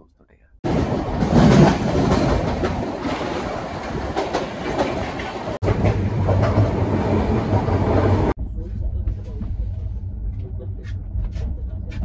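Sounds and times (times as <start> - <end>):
train wheels clattering: 0.7 - 8.3
steady low hum: 7.9 - 12.0.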